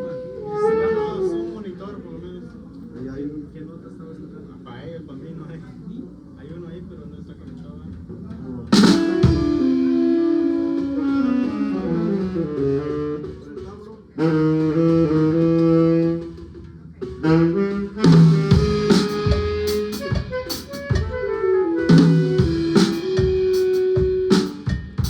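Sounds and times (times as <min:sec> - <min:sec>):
band melody of held notes: 0:08.7 - 0:13.5, 0:14.2 - 0:16.6, 0:17.2 - 0:25.0
drum kit hits: 0:08.8 - 0:09.7, 0:18.1 - 0:21.2, 0:21.9 - 0:25.0.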